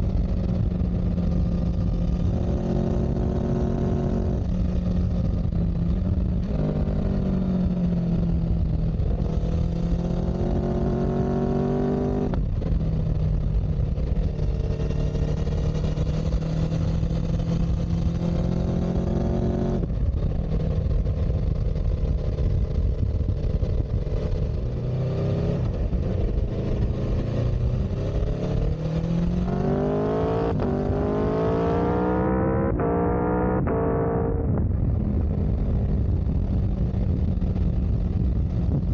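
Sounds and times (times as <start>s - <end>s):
steady low rumble: 0.0s - 19.1s, 25.6s - 38.9s
vehicle engine shifting gears: 25.2s - 34.7s.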